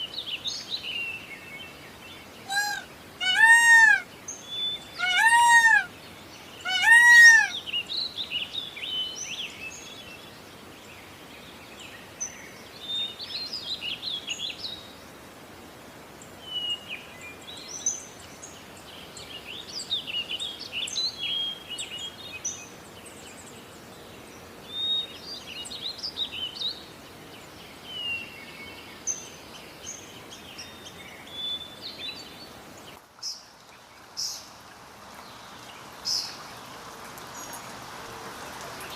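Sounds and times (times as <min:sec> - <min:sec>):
small birds chirping: 0:00.0 - 0:15.0, 0:16.2 - 0:38.9
background hiss: 0:00.0 - 0:38.9
bird ringing call: 0:02.5 - 0:04.0.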